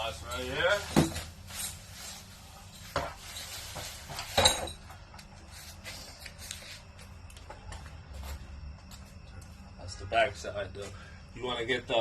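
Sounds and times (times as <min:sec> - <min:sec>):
objects knocking: 0:00.8 - 0:01.3.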